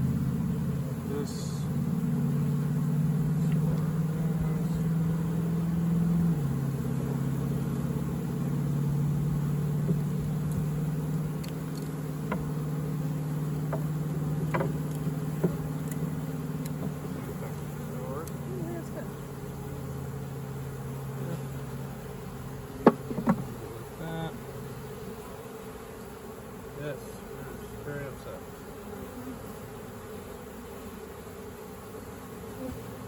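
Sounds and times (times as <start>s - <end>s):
bees buzzing: 0.0s - 33.0s
wooden frames clicking: 13.7s - 17.0s.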